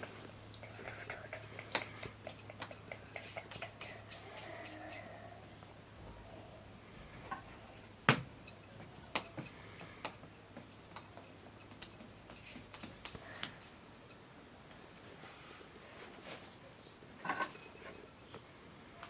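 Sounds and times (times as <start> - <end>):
kitchen utensils and dishes clinking: 0.6 - 5.5, 8.4 - 14.2, 17.2 - 18.3.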